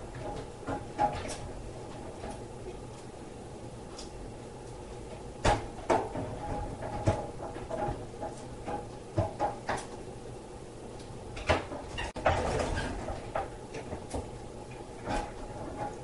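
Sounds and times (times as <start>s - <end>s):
steady low hum: 0.0s - 16.0s
sharp knocks and clunks: 5.4s - 9.9s.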